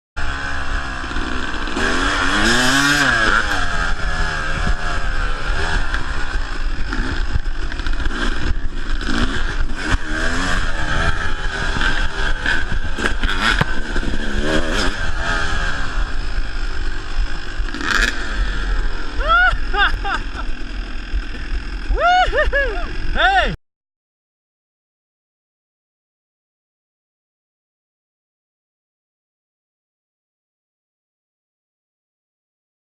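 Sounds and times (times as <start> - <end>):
dirt bike engine revving: 0.2 - 23.6
wind and riding noise: 0.2 - 23.6.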